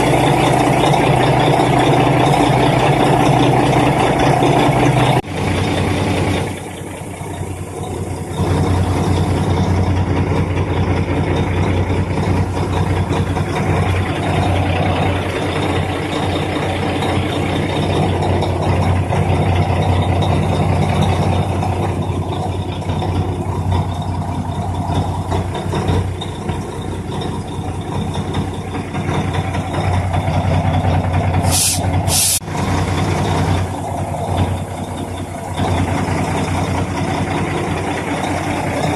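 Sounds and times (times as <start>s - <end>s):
short hisses: 31.4s - 32.4s.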